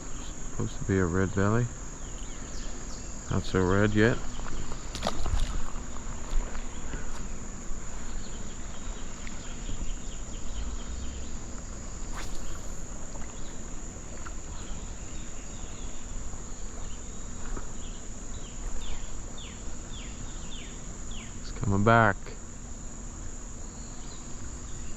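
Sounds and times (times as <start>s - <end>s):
insects trilling: 0.0s - 24.9s
sharp click: 12.1s - 12.9s.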